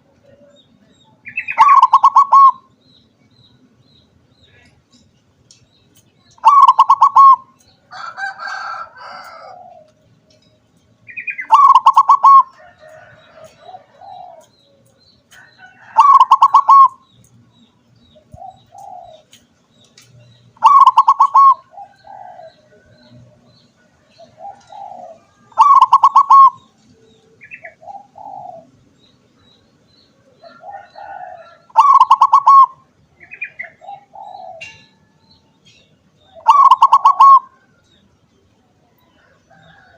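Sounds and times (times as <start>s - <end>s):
dove cooing: 1.2s - 2.7s, 6.4s - 10.0s, 11.1s - 14.7s, 15.8s - 17.0s, 18.2s - 19.4s, 20.6s - 28.8s, 30.2s - 35.1s, 36.3s - 37.8s.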